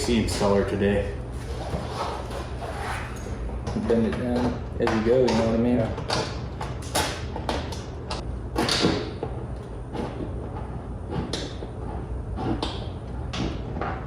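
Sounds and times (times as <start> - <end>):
scraping swishes: 1.4 - 3.4.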